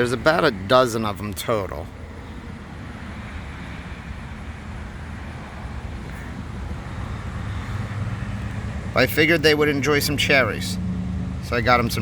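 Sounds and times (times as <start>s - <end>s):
road traffic rumble and hiss: 0.0s - 12.0s.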